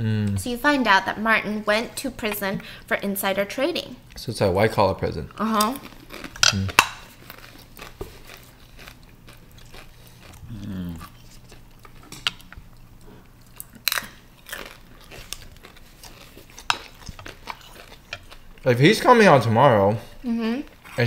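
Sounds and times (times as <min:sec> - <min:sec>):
person humming mm: 0:00.0 - 0:00.4, 0:10.4 - 0:11.2
people chewing food: 0:04.0 - 0:21.0.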